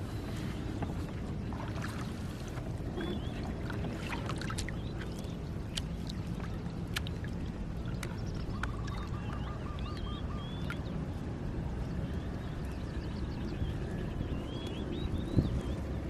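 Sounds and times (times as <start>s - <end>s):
low rumble of wind: 0.0s - 16.0s
water: 0.0s - 16.0s
bird calling repeated notes: 8.5s - 10.8s.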